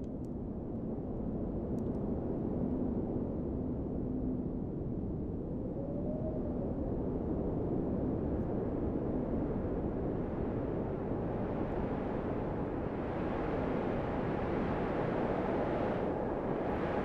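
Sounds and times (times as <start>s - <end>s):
blizzard wind blowing: 6.2s - 17.0s.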